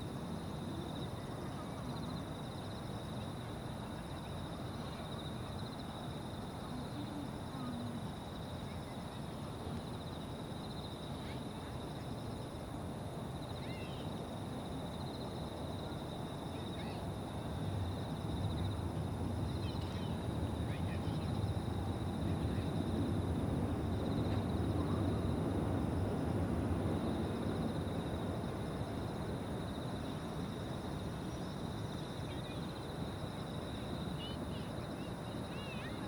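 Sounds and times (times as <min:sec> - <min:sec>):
insects trilling: 0:13.4 - 0:25.9, 0:26.8 - 0:36.0.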